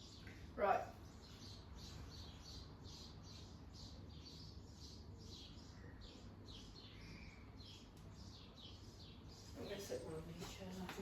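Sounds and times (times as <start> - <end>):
faint bird chirping: 0.0 - 11.0
low background hum: 0.0 - 11.0.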